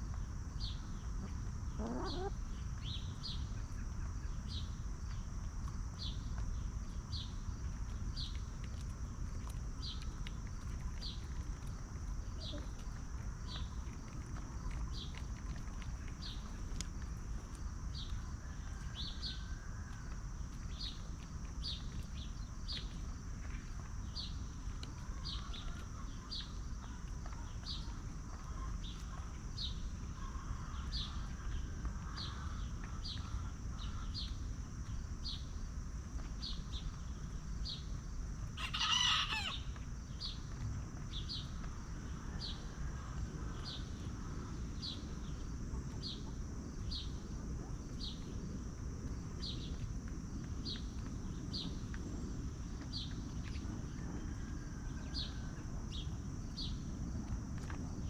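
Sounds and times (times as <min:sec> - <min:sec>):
chickens calling softly: 0:01.2 - 0:02.6, 0:10.7 - 0:16.8, 0:38.6 - 0:39.8
loud short chicken call: 0:38.6 - 0:39.6.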